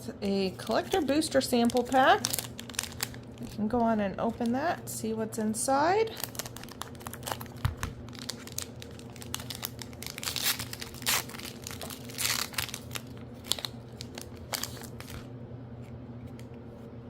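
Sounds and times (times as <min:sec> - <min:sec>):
foil wrapper crinkling: 0:00.4 - 0:04.6, 0:06.1 - 0:15.3
foil wrapper tearing: 0:00.6 - 0:04.5, 0:06.1 - 0:15.3.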